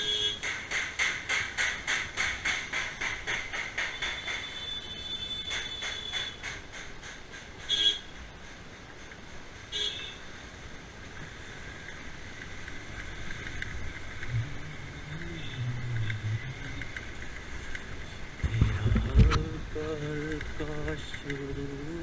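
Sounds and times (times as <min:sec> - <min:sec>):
wind and road rumble: 0:05.5 - 0:22.0
motorbike engine hum: 0:11.9 - 0:22.0.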